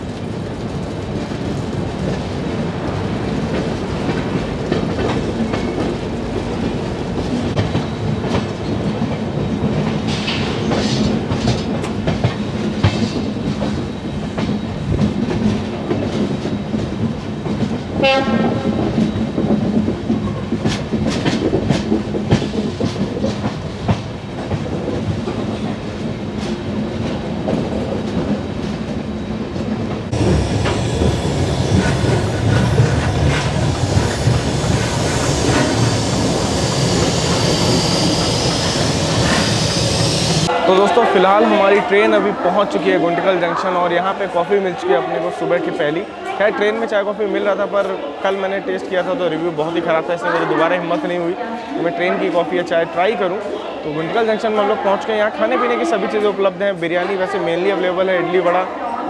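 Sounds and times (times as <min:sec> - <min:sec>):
train wheels clattering: 0:00.8 - 0:40.5
train horn: 0:18.0 - 0:18.8.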